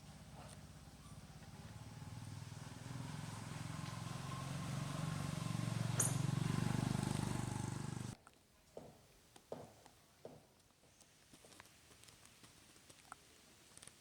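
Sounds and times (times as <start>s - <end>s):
vehicle engine running: 0.0s - 8.2s.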